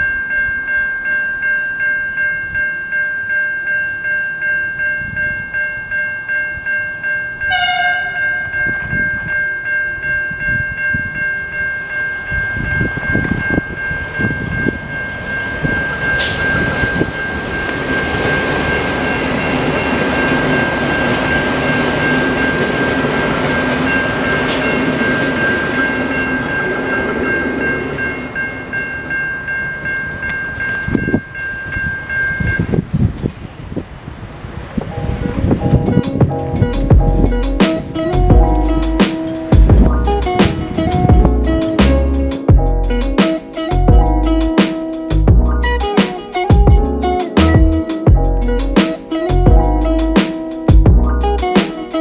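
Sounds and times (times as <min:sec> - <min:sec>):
level crossing bell ringing: 0:00.0 - 0:32.8
railcar engine and wheel rumble: 0:00.0 - 0:52.0
train horn toot: 0:07.5 - 0:08.5.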